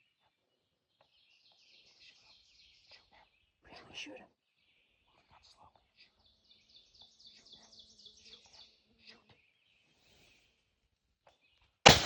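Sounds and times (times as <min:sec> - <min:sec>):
songbird trill: 0:00.0 - 0:03.6, 0:04.4 - 0:10.4.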